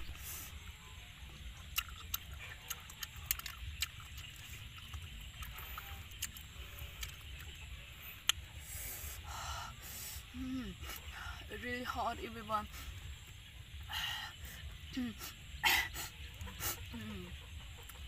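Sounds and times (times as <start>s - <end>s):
steady low rumble: 0.0s - 18.0s
wet chewing clicks and smacks: 1.6s - 8.6s.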